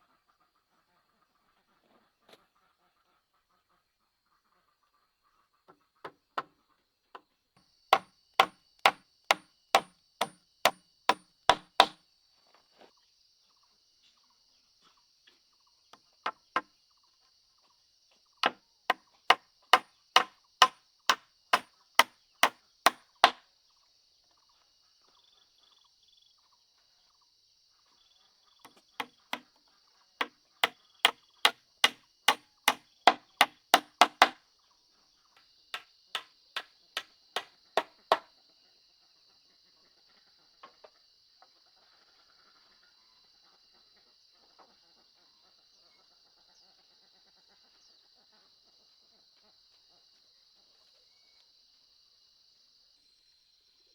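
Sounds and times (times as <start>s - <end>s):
hand tool striking: 8.4s - 12.0s, 22.9s - 23.4s, 31.8s - 34.4s, 37.4s - 38.2s.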